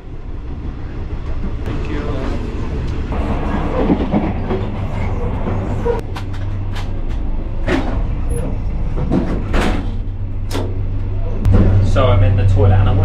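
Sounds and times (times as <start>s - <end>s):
train carriage rumbling: 0.0s - 13.0s
sharp clanks and knocks: 5.4s - 10.8s, 11.4s - 12.0s.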